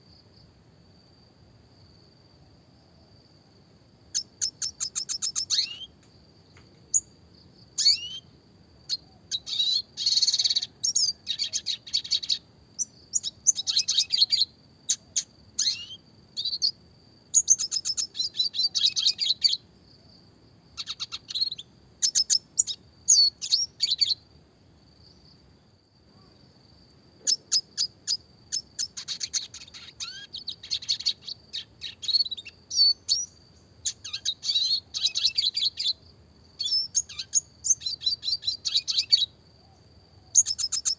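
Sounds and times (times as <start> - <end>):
bird twittering trills: 4.1 - 5.9, 7.8 - 8.3, 8.9 - 19.6, 20.8 - 24.2, 27.2 - 36.0, 36.6 - 39.3, 40.3 - 40.9.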